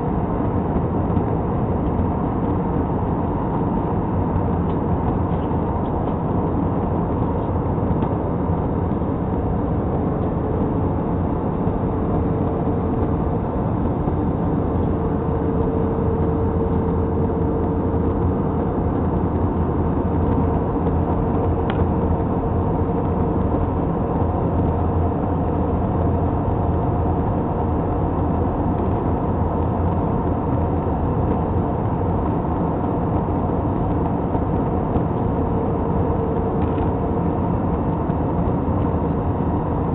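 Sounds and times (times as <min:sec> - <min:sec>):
airliner cabin engine drone: 0:00.0 - 0:39.9
steady hum: 0:00.0 - 0:39.9.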